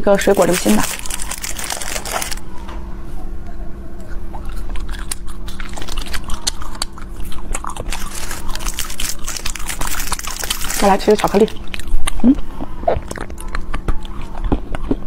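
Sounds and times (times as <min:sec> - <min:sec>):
candy wrapper crinkling: 0:00.1 - 0:02.4, 0:07.5 - 0:12.0
biting and chewing soft candy: 0:00.2 - 0:02.5, 0:04.0 - 0:15.0.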